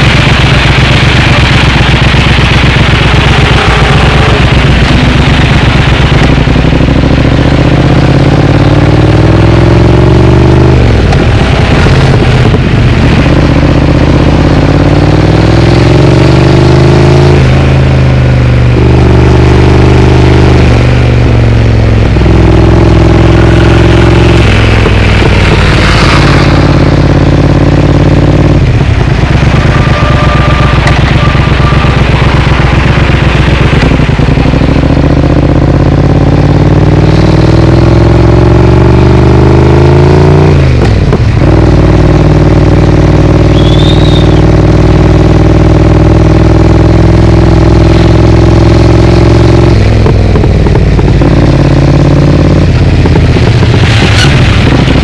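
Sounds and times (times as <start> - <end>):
motorcycle engine changing gears: 0.0 - 55.0
traffic: 0.0 - 55.0.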